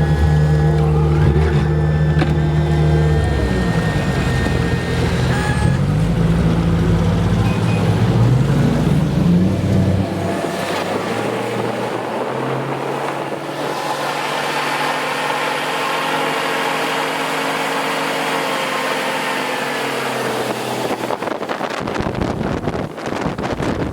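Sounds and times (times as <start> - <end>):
boat engine humming: 0.0 - 23.8
wind buffeting microphone: 20.3 - 23.9.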